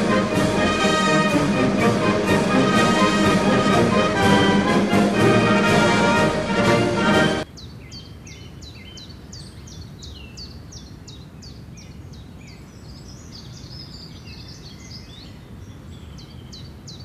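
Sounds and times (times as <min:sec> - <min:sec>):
small birds chirping: 0:07.4 - 0:17.0.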